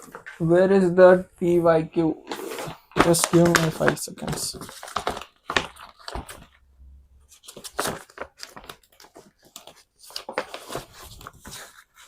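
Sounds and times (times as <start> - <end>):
paper rustling and crinkling: 2.2 - 6.6, 7.3 - 12.0.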